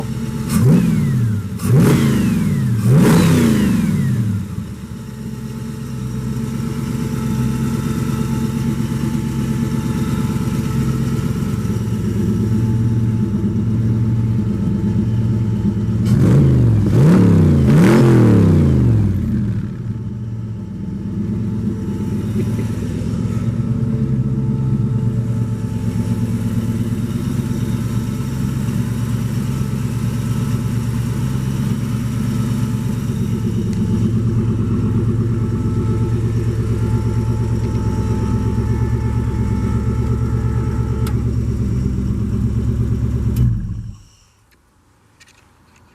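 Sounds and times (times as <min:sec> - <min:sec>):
car engine revving and idling: 0:00.0 - 0:44.2.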